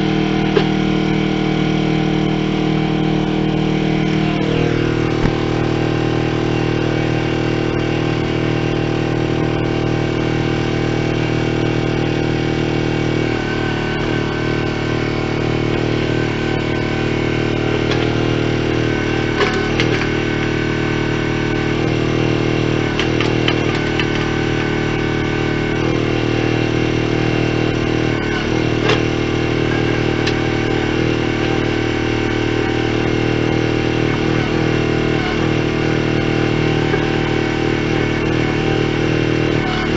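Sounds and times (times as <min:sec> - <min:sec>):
trencher engine running: 0:00.0 - 0:39.9.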